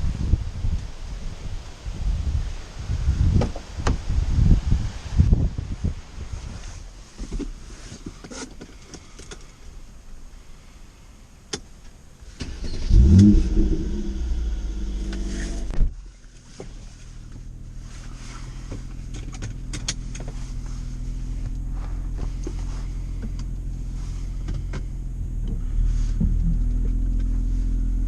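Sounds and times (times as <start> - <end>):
car engine running and idling: 11.6 - 28.0.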